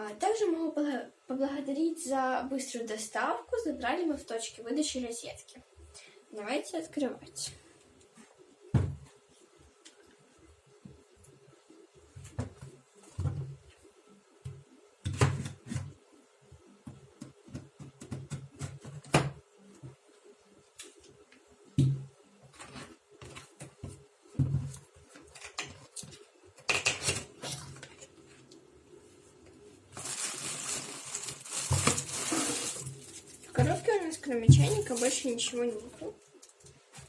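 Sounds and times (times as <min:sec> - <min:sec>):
packaging rustling: 0:29.9 - 0:33.8.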